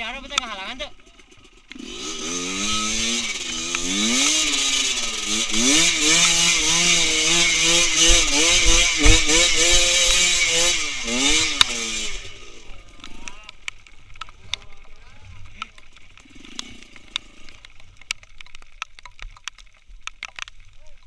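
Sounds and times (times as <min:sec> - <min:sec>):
motorcycle engine revving: 0:00.0 - 0:17.9
low thumps: 0:02.7 - 0:12.2.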